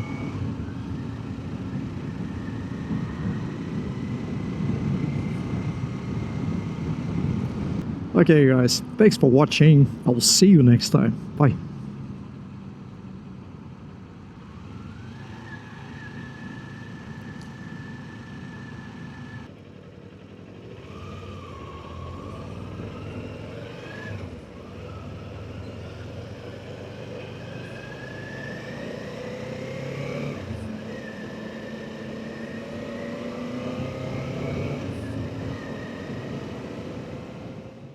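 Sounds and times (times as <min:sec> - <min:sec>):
motorcycle engine accelerating: 0:14.4 - 0:37.9.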